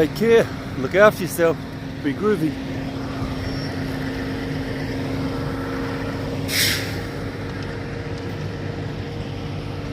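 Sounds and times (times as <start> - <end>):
truck diesel engine running: 0.0 - 9.9
air hiss: 6.5 - 7.0.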